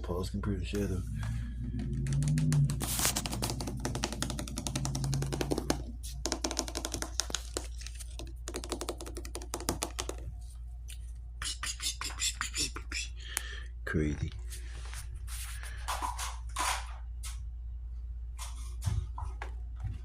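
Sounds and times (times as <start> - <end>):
steady low hum: 0.0 - 6.4
rapid clicking and tapping: 1.8 - 10.3.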